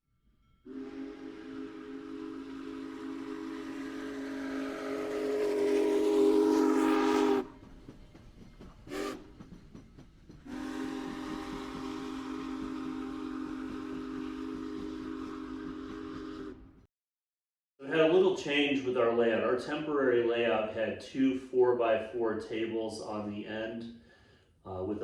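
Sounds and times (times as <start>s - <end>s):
train whistle chord: 0.4s - 7.7s, 8.9s - 9.3s, 10.5s - 16.9s.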